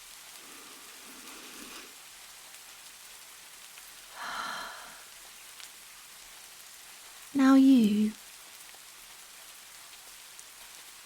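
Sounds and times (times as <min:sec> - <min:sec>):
rain pattering: 0:00.0 - 0:11.0
woman breathing: 0:04.1 - 0:05.2.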